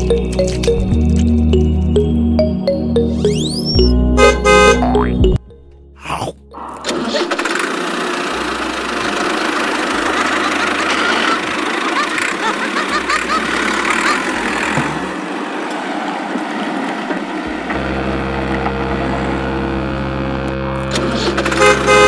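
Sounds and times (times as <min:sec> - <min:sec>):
tractor engine starting and running: 0:06.8 - 0:22.0.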